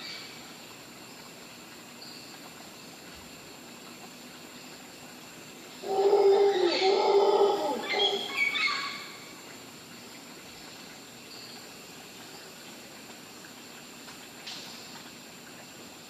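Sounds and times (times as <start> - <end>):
howler monkey calling: 5.7 - 9.3.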